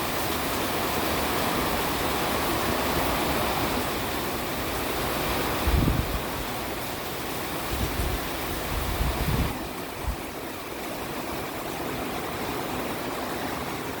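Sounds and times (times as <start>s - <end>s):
wind and rain rushing: 0.0s - 14.0s
wind gusts rumbling on microphone: 1.1s - 10.4s.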